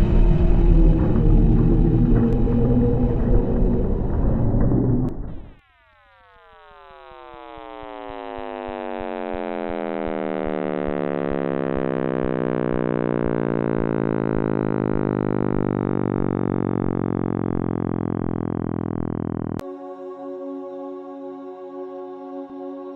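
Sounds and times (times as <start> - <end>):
steady low drone: 0.0 - 5.6, 9.6 - 22.9
falling synthetic chord: 7.8 - 22.9
faint regular ticking: 11.8 - 19.6.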